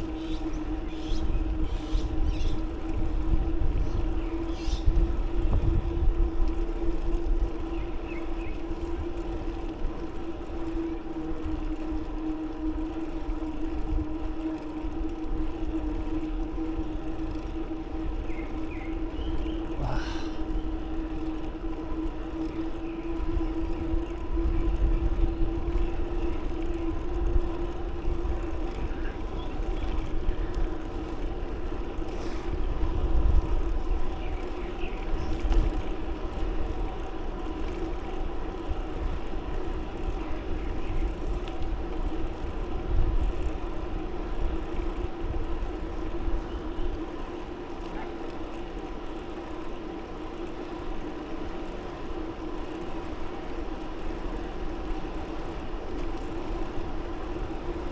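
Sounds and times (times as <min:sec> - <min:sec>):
wind buffeting microphone: 0:00.0 - 0:47.8
steady droning hum: 0:00.0 - 0:57.9.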